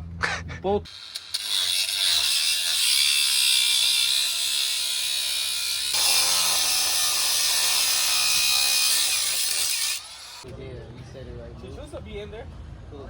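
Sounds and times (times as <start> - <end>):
power tool grinding metal: 0.9 - 10.5.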